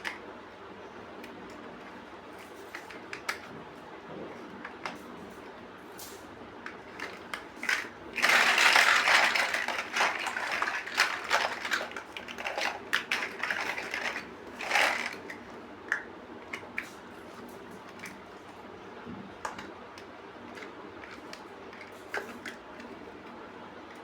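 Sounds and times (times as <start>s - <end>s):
plastic bricks clattering: 6.6s - 16.9s.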